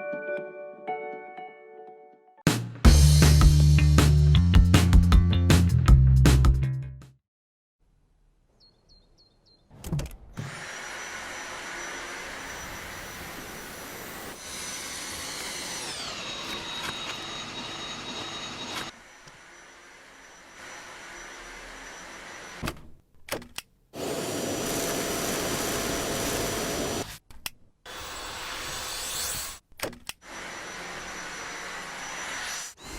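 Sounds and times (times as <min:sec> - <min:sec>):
stick vacuum running: 0:10.4 - 0:19.4, 0:24.0 - 0:27.1.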